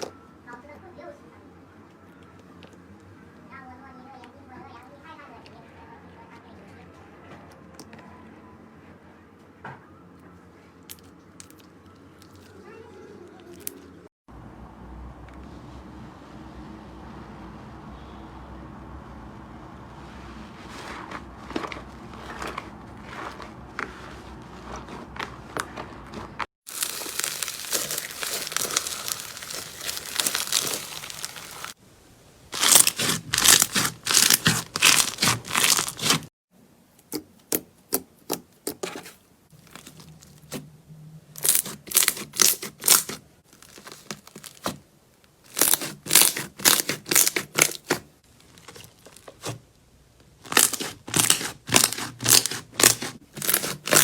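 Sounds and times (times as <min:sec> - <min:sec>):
slime squishing: 0:20.5 - 0:31.8, 0:32.6 - 0:36.3, 0:37.0 - 0:40.7, 0:41.4 - 0:44.8, 0:45.4 - 0:49.7, 0:50.3 - 0:54.0
slime crunching: 0:20.7 - 0:31.8, 0:32.6 - 0:36.3, 0:37.0 - 0:40.6, 0:41.4 - 0:44.8, 0:45.4 - 0:49.7, 0:50.3 - 0:54.0
slime crackling: 0:21.4 - 0:31.8, 0:32.6 - 0:36.3, 0:38.3 - 0:40.6, 0:41.4 - 0:44.8, 0:45.5 - 0:49.6, 0:50.4 - 0:54.0.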